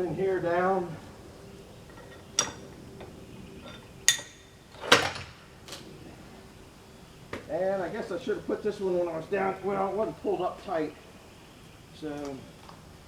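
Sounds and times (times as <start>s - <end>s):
metal clanks and knocks: 1.9s - 5.3s.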